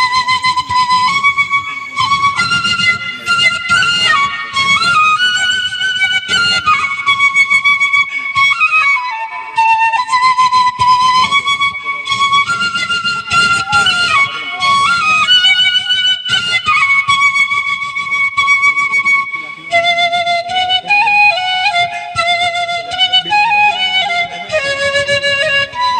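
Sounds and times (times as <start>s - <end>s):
flute-like melody: 0.0s - 25.9s.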